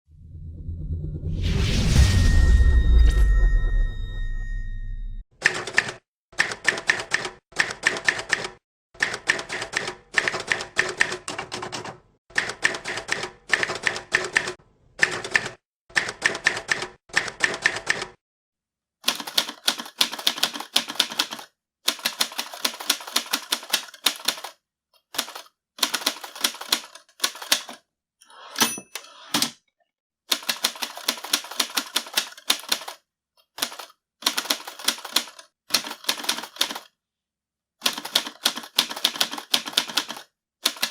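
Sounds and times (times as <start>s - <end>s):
mechanical typewriter typing: 19.1s - 24.6s, 25.2s - 27.8s, 30.3s - 33.0s, 33.6s - 36.9s, 37.8s - 40.9s
typewriter margin bell ring: 28.5s - 29.2s.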